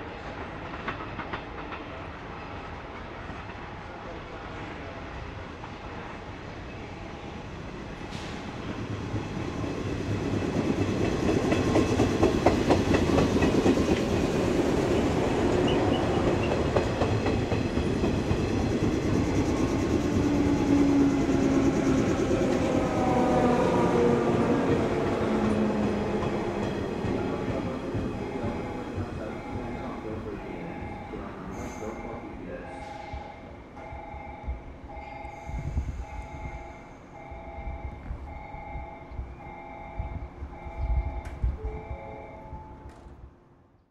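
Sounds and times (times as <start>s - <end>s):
train running past: 0.0s - 43.6s
wheels clacking over rail joints: 10.0s - 23.4s
train motor hum: 12.0s - 32.1s.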